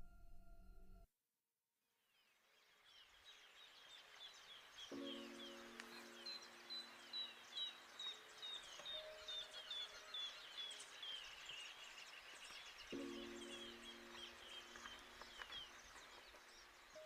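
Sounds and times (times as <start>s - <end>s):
low held chord: 4.9s - 11.1s.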